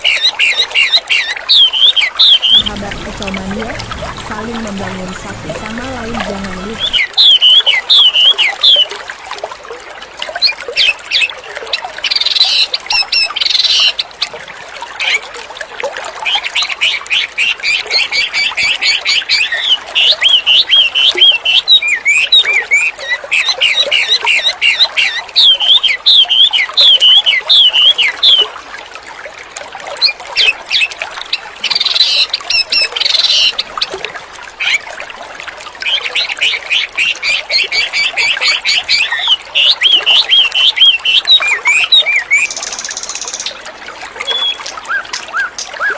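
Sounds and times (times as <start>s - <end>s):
songbird singing: 0.0s - 9.0s, 16.6s - 28.5s, 35.8s - 43.6s, 44.2s - 45.5s.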